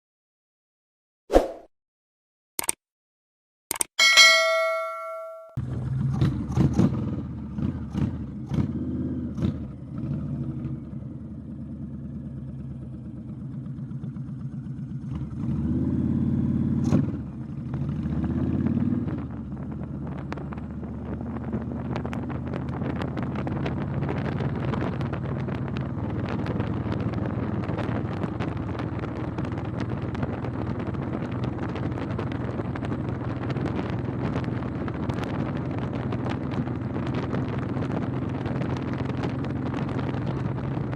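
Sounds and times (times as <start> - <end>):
motorcycle engine running: 4.3 - 40.9
road noise: 5.6 - 40.9
wind noise: 19.0 - 40.9.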